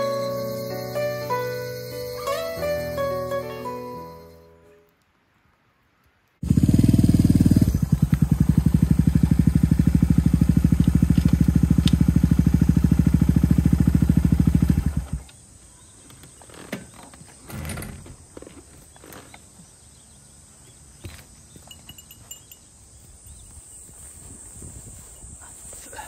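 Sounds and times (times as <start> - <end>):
motorcycle engine running: 6.4 - 15.3.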